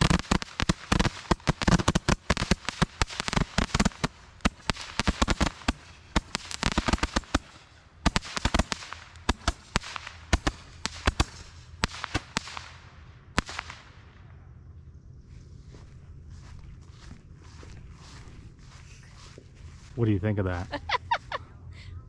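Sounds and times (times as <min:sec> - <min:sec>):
fireworks cracking and popping: 0:00.0 - 0:14.0.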